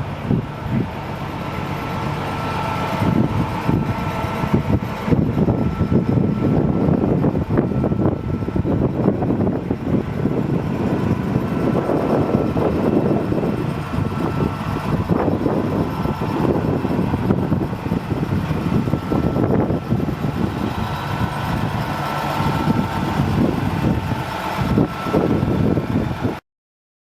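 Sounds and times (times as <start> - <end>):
diesel truck engine rumbling: 0.0 - 26.4.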